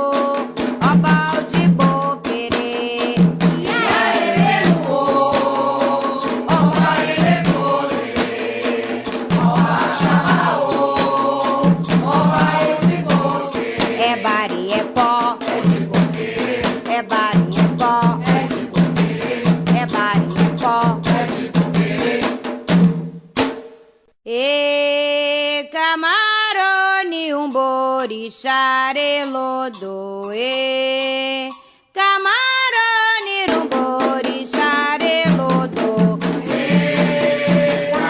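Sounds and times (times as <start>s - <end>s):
call-and-response singing: 0.0s - 22.5s, 24.3s - 38.0s
hand drum strikes: 0.0s - 23.7s, 33.2s - 38.0s.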